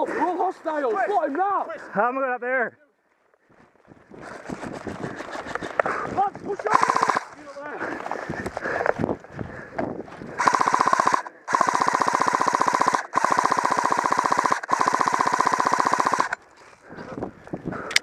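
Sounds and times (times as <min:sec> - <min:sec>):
airsoft gun bursts: 0:06.5 - 0:07.5, 0:10.4 - 0:16.4.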